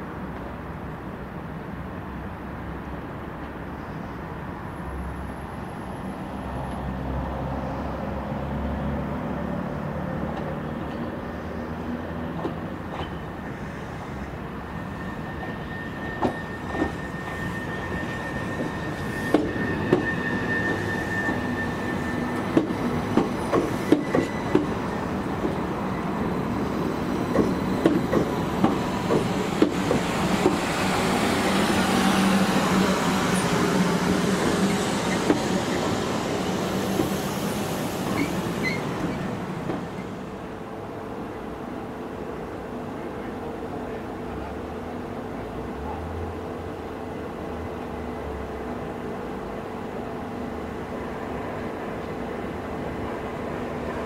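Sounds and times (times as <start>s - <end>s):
electric train arriving: 0.2s - 54.0s
thin high squeal: 14.6s - 22.5s.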